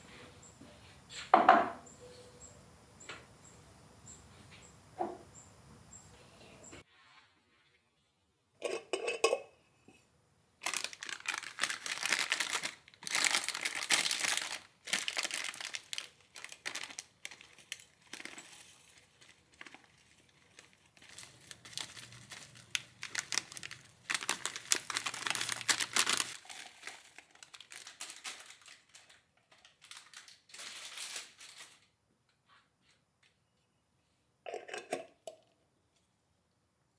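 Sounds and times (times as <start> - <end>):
crinkling and rustling: 10.6 - 33.4.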